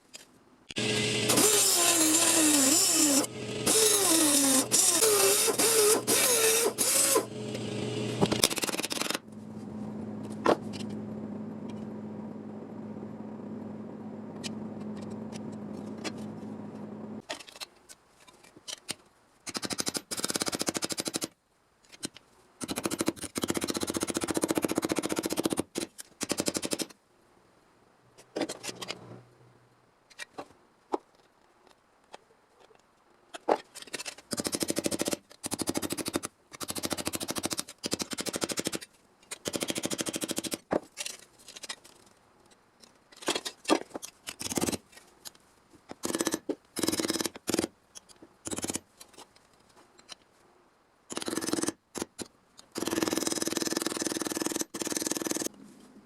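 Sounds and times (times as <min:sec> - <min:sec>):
motor humming: 0:00.8 - 0:08.4
power tool on sheet metal: 0:00.8 - 0:08.4.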